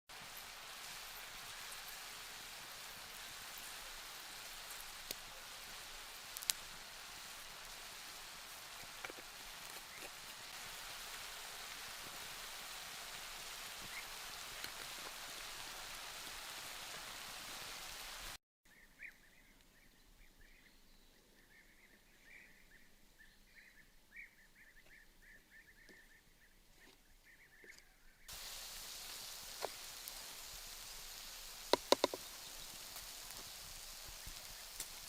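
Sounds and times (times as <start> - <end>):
steady hissing noise: 0.1 - 18.4, 28.3 - 35.0
sharp clicks: 31.7 - 32.2.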